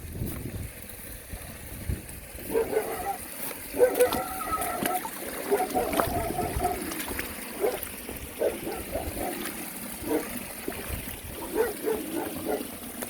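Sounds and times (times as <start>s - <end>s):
stream water trickling: 0.0s - 13.0s
dog barking: 2.5s - 6.9s, 7.6s - 7.8s, 8.4s - 9.4s, 10.0s - 10.4s, 11.4s - 12.7s.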